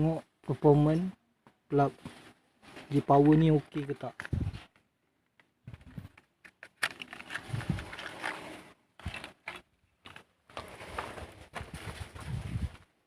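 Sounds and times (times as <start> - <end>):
tools being handled: 5.7 - 11.0.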